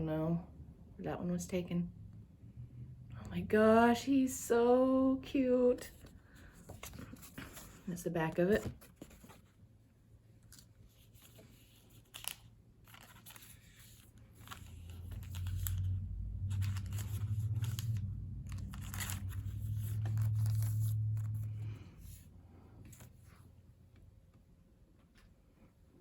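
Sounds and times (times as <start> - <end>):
loud low hum: 0.4 - 5.3, 14.4 - 22.8
plastic packaging crinkling: 10.5 - 21.4.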